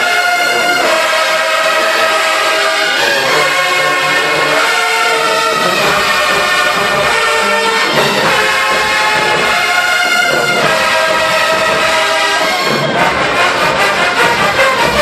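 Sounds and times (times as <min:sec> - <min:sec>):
brass band playing held chords: 0:00.0 - 0:15.0.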